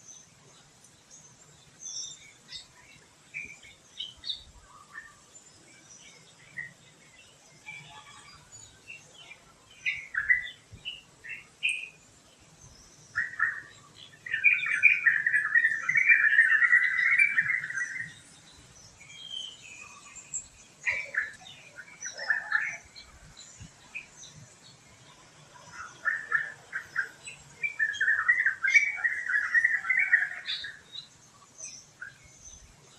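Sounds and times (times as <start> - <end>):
birds chirping: 0.0 - 32.9.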